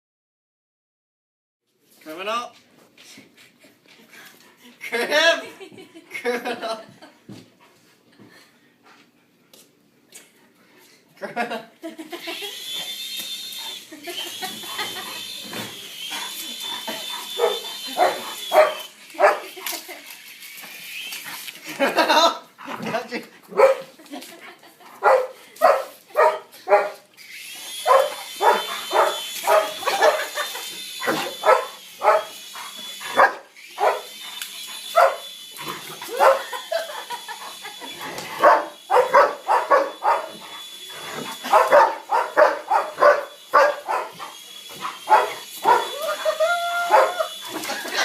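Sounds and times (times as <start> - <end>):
toy helicopter motor whining: 12.0 - 22.1, 27.2 - 48.0
dog barking: 17.4 - 19.5, 23.5 - 23.9, 25.0 - 27.0, 27.8 - 30.3, 31.0 - 32.4, 33.1 - 34.1, 34.9 - 35.3, 36.2 - 36.6, 38.4 - 40.4, 41.5 - 44.3, 45.1 - 45.9, 46.9 - 47.3.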